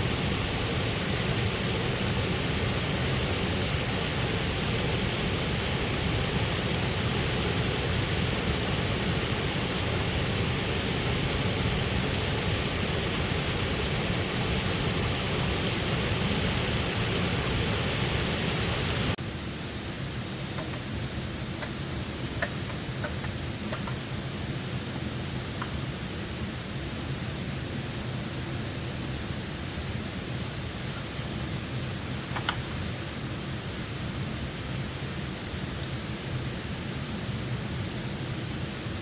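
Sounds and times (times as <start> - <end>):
falling water rushing: 0.0 - 19.2.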